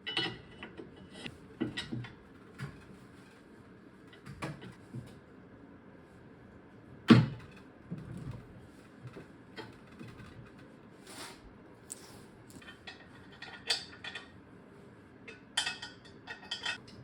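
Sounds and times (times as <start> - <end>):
metal tools clicking and clinking: 15.3 - 17.0.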